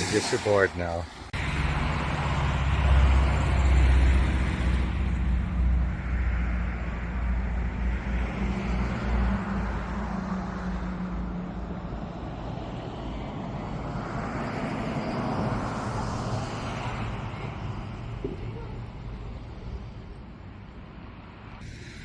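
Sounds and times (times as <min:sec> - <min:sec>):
vehicle passing by: 0:01.4 - 0:18.0.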